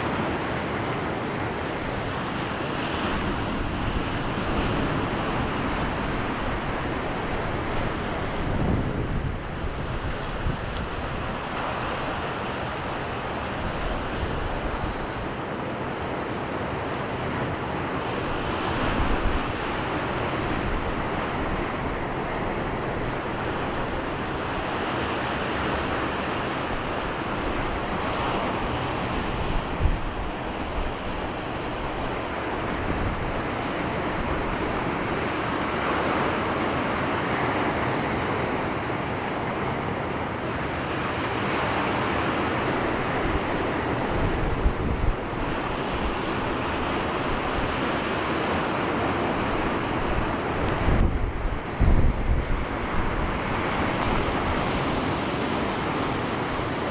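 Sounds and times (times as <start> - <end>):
sea surf washing onto shore: 0.0 - 56.9
wind buffeting microphone: 3.1 - 15.3, 42.8 - 56.9.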